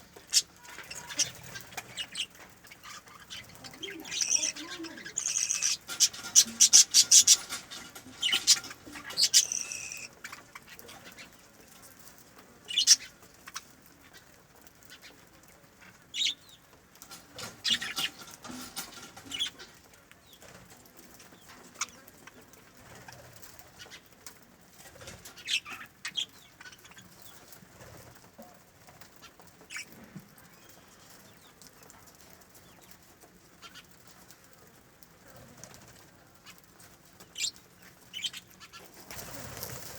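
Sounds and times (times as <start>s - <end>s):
birds flapping wings: 0.0s - 12.2s, 35.4s - 39.9s.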